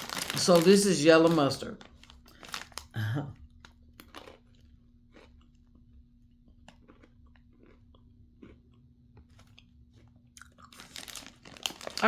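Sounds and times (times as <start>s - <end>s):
pretzel snack crunching: 0.0s - 12.0s
faint chewing: 1.8s - 12.0s.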